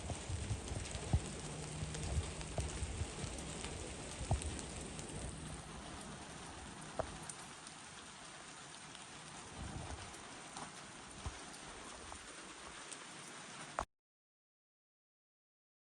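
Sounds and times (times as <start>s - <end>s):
low rumble: 0.0s - 7.3s
rain falling in forest: 0.0s - 13.9s.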